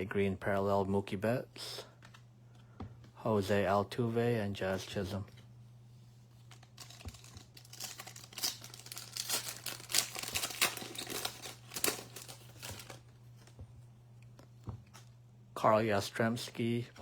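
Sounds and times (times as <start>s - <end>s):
foil wrapper tearing and crinkling: 6.5s - 13.1s.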